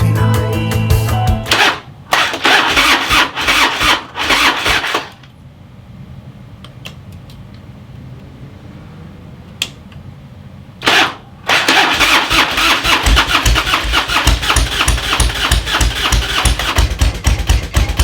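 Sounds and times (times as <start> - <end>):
motorcycle starter cranking: 1.5 - 5.2, 10.8 - 18.0.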